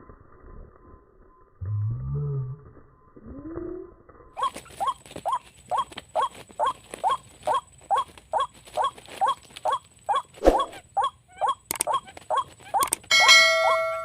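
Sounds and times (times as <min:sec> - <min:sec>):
waterhen calling: 0:04.4 - 0:14.0.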